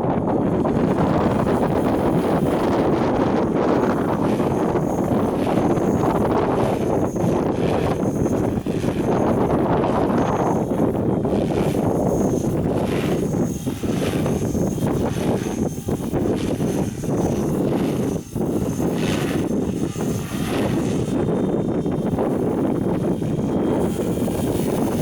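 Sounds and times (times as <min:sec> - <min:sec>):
model helicopter whine: 0:00.0 - 0:25.0
wind buffeting microphone: 0:00.0 - 0:25.0.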